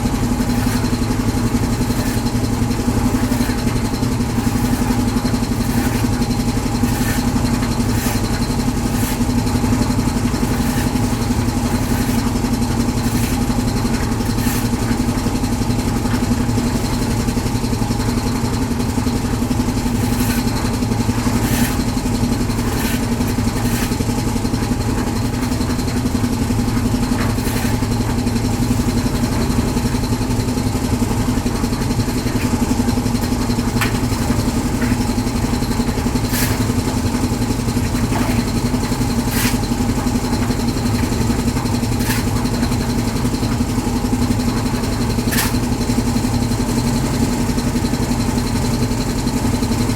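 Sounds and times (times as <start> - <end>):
concrete mixer engine running: 0.0 - 49.9.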